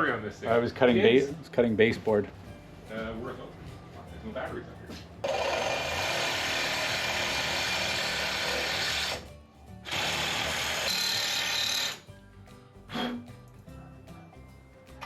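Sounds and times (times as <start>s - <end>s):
power saw cutting metal pipe: 5.2s - 9.2s, 9.9s - 12.0s.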